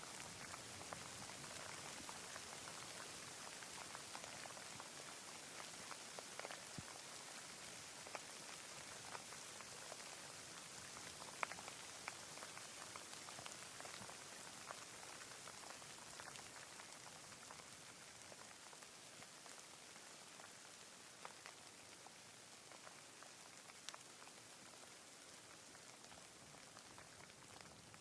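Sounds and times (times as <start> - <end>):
light rain falling: 0.0 - 28.0.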